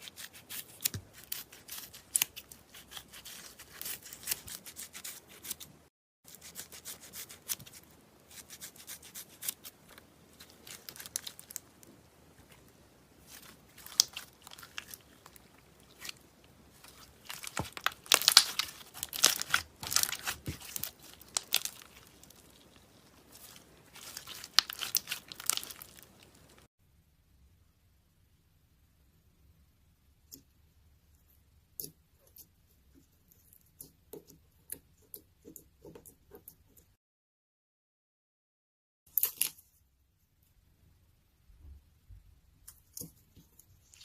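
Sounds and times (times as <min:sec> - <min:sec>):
slime crackling and crunching: 0:10.3 - 0:11.9, 0:13.2 - 0:26.7.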